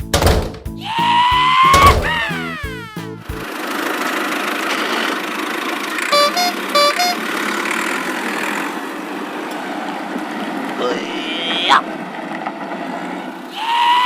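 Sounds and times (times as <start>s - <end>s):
cartoon engine running: 0.8s - 8.1s
two-note horn beeping: 6.1s - 7.3s.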